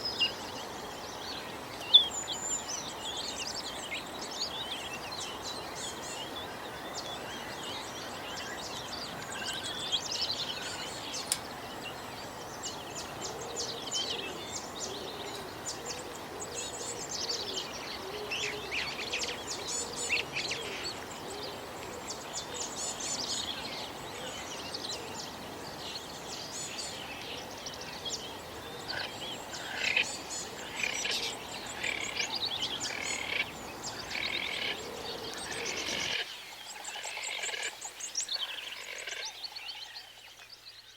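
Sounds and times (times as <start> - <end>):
background hiss: 0.0 - 40.9
birds chirping chorus: 0.0 - 40.9.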